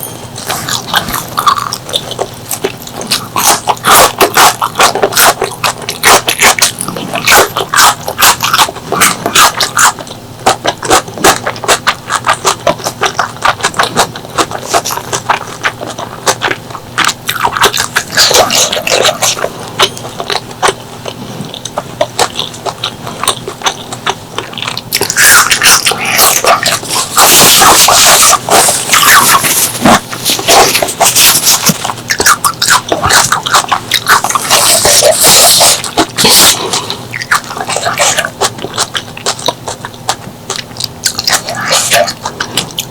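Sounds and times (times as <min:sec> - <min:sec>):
wet chewing and lip smacks: 0:00.0 - 0:42.9.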